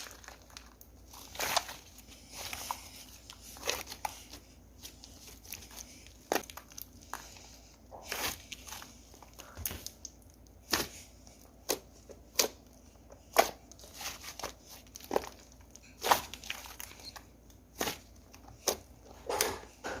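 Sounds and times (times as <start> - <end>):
slime popping and crackling: 0.0 - 7.4.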